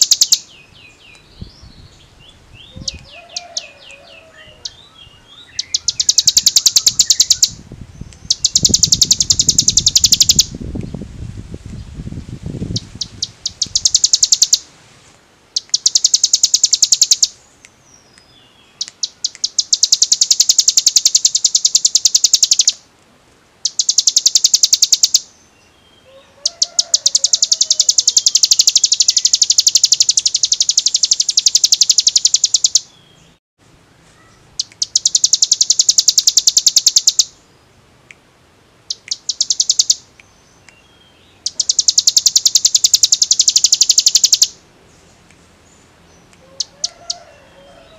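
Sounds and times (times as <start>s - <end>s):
bird trilling: 0.0s - 10.6s, 12.7s - 14.7s, 15.6s - 17.4s, 18.7s - 22.8s, 23.6s - 25.4s, 26.1s - 33.3s, 34.2s - 37.5s, 38.9s - 44.6s, 46.2s - 47.9s.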